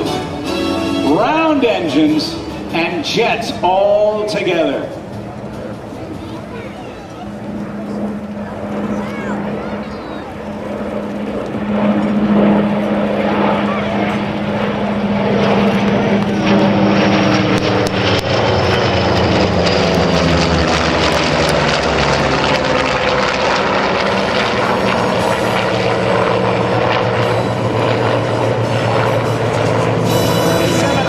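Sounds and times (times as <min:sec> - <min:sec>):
jet whine: 0:00.0 - 0:31.0
piston engines droning: 0:00.0 - 0:31.0
high tone sliding down: 0:24.6 - 0:31.0.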